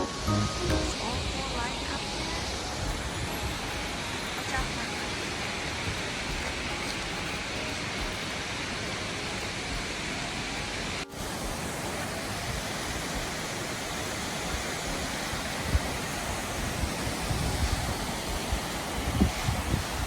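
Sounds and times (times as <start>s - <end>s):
waterfall rushing: 0.0s - 20.0s
wind thumps on microphone: 12.5s - 20.0s.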